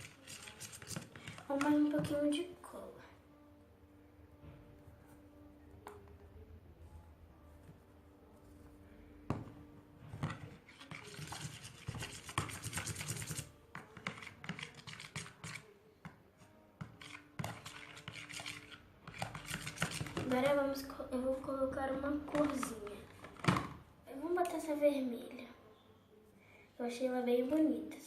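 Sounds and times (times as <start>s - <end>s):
utensil stirring slime: 0.0s - 2.4s, 10.2s - 15.7s, 16.8s - 23.7s.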